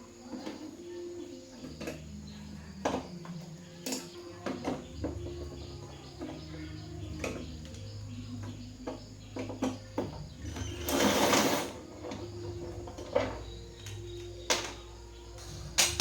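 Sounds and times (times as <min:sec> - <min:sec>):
clicks and knocks of tools: 0:12.0 - 0:16.0.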